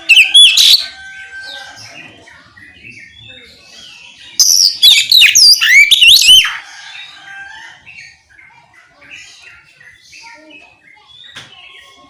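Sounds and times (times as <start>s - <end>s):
bird chirps: 0.0s - 7.1s
bird singing whistled notes: 3.9s - 6.5s.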